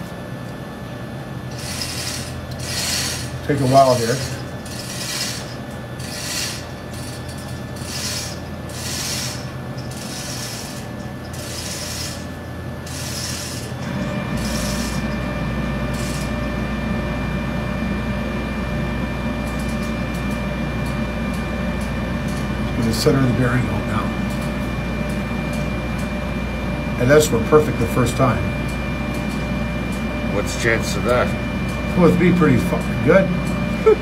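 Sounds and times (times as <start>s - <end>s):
low machinery hum: 0.0s - 34.0s
hoist chain rattling: 1.5s - 12.3s.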